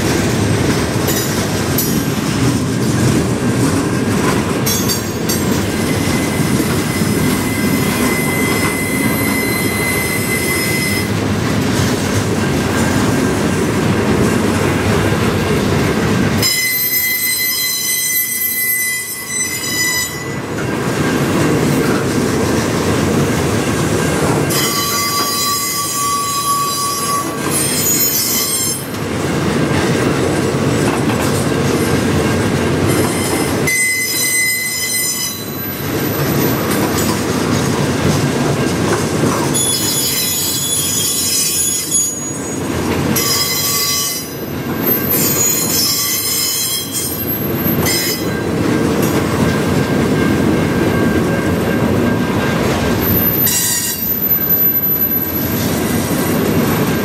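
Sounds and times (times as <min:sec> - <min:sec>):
freight train rumbling past: 0:00.0 - 0:57.0
high-pitched wheel squeal: 0:05.8 - 0:11.2, 0:16.4 - 0:20.5, 0:24.5 - 0:28.8, 0:33.1 - 0:36.2, 0:39.5 - 0:42.6, 0:43.2 - 0:48.5, 0:53.0 - 0:55.5.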